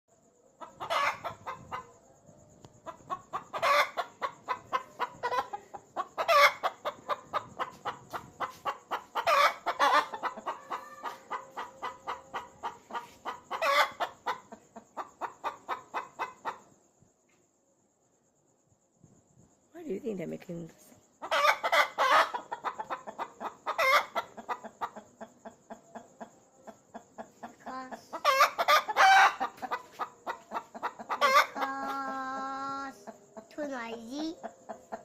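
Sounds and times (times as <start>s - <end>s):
chicken squawk: 0.6s - 1.9s, 2.8s - 16.6s, 21.2s - 26.0s, 26.9s - 32.7s
chickens clucking: 0.6s - 16.8s, 21.1s - 35.0s.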